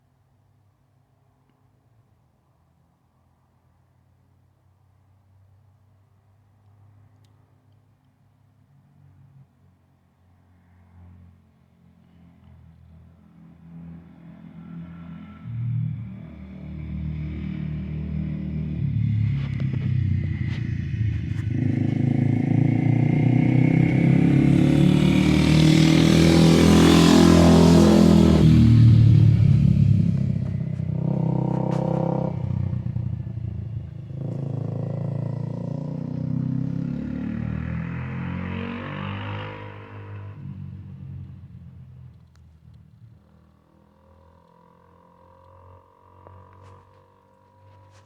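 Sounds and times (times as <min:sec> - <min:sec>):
motorcycle engine passing: 0:13.6 - 0:42.2, 0:42.8 - 0:48.0.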